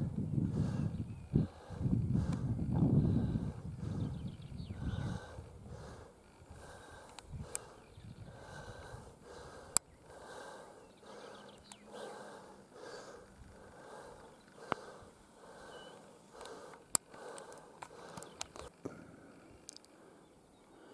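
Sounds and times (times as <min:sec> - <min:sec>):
person breathing heavily: 0:00.0 - 0:20.9
sharp clicks: 0:07.0 - 0:07.8, 0:16.0 - 0:18.8.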